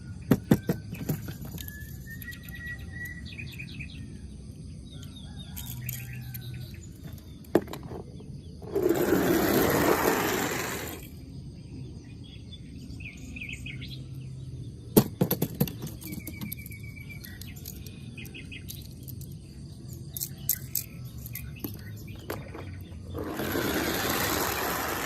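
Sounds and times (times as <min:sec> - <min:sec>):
bird trill: 0:00.0 - 0:07.4, 0:15.8 - 0:25.0
small birds chirping: 0:00.0 - 0:25.0.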